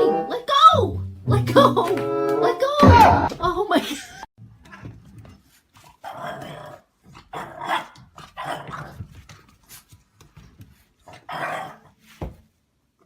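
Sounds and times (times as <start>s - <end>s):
dog growling and barking: 6.0s - 9.0s, 11.1s - 12.0s.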